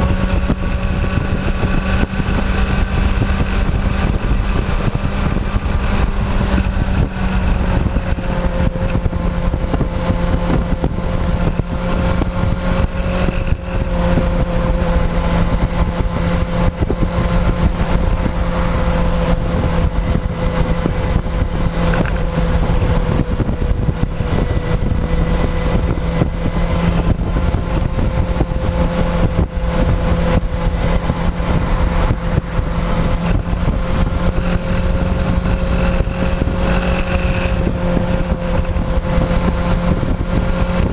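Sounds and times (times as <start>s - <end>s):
motorcycle engine running: 0.0s - 40.9s
wind and road rumble: 0.0s - 40.9s.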